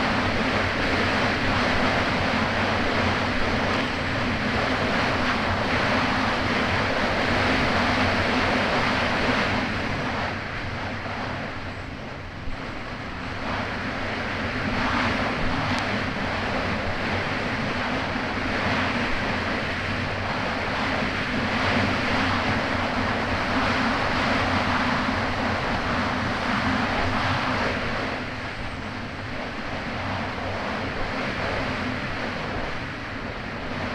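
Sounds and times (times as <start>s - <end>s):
jet ski engine running: 0.0s - 12.3s
wind noise on microphone: 0.0s - 33.9s.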